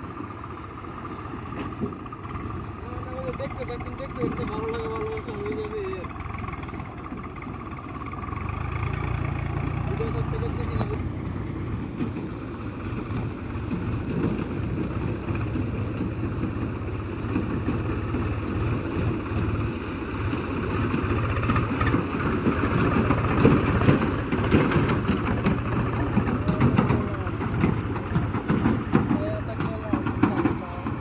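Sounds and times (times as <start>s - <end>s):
heavy diesel engine running: 0.0s - 31.0s.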